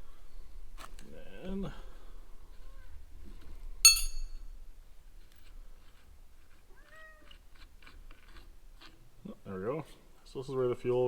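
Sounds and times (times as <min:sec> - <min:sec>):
metal tool striking metal: 0:03.9 - 0:04.4
cat meowing: 0:06.7 - 0:07.4.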